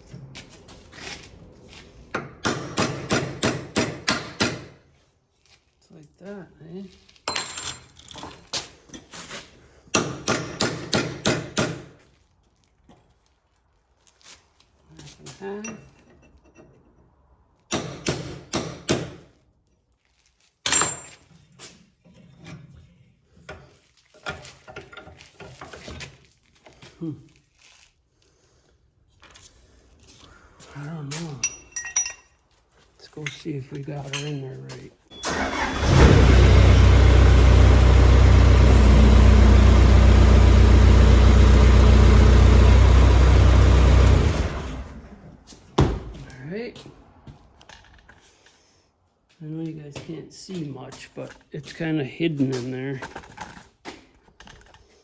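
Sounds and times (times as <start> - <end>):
clatter of parts being handled: 7.0 - 9.5, 52.6 - 55.0
milling machine motor running: 35.8 - 45.0.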